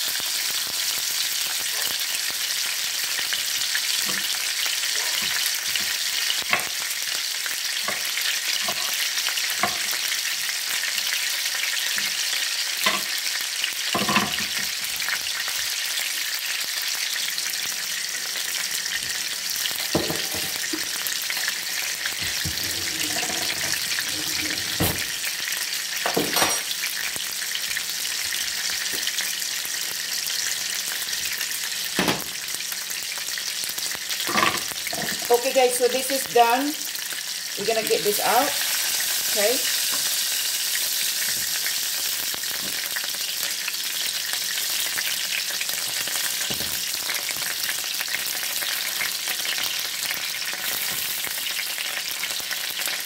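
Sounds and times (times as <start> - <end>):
meatballs sizzling in oil: 0.0 - 53.0
knocks in skillet: 32.0 - 32.3.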